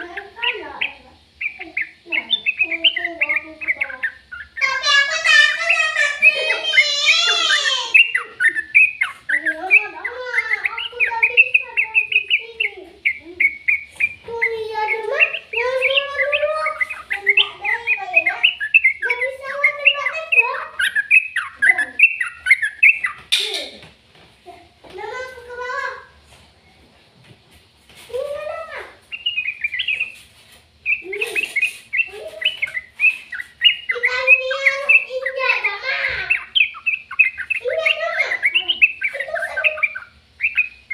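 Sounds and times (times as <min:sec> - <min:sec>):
bird chirping and warbling: 0:00.0 - 0:23.7, 0:28.0 - 0:40.9.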